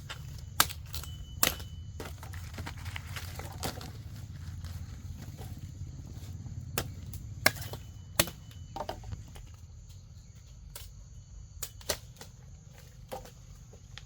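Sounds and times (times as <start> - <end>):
blade chopping sugarcane stalks: 0.0 - 9.5, 11.6 - 14.0.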